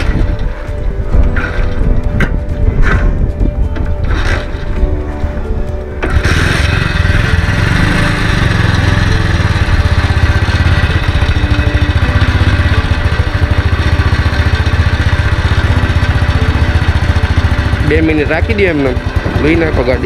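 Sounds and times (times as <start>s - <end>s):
motorcycle engine idling: 6.0s - 20.0s.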